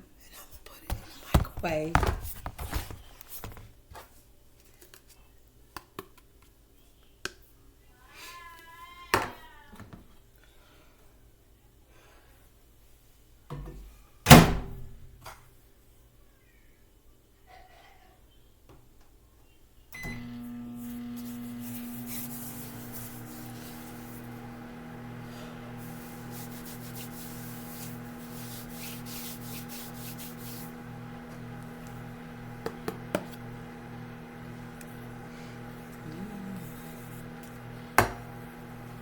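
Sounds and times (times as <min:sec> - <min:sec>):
microwave oven humming: 0:20.0 - 0:39.0.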